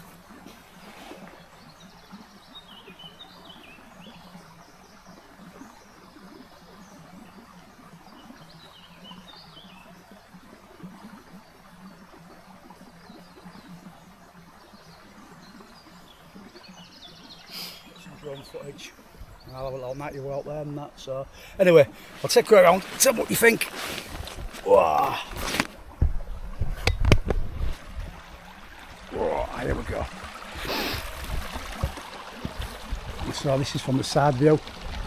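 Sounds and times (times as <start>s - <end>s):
stream water rushing: 0.0s - 4.0s, 17.3s - 35.0s
small birds chirping: 11.0s - 25.5s, 28.1s - 34.9s.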